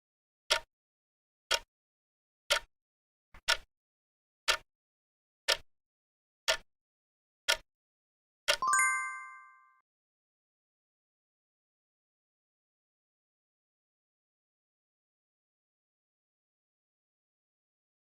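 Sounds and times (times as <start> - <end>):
countdown timer ticking: 8.5 - 9.8
bright ringing chime: 8.6 - 9.8.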